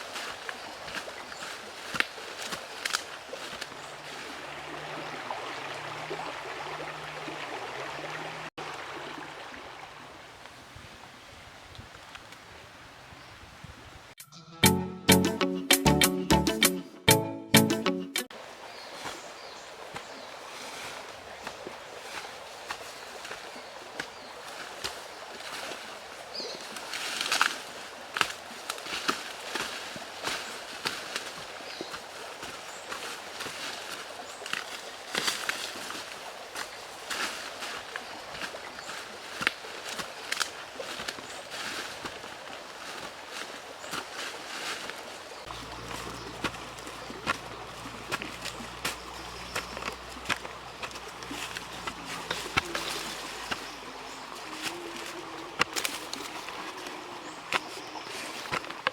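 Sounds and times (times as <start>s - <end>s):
river water rushing: 0.0s - 10.8s, 18.3s - 58.9s.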